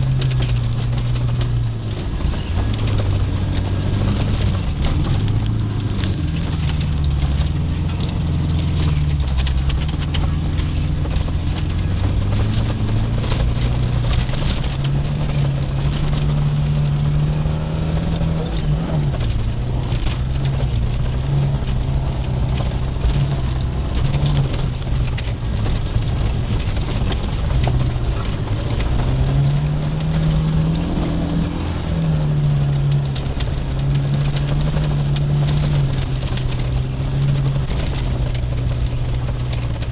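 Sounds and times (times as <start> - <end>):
car engine revving: 0.0 - 39.9
tyres rushing on snow: 0.0 - 39.9.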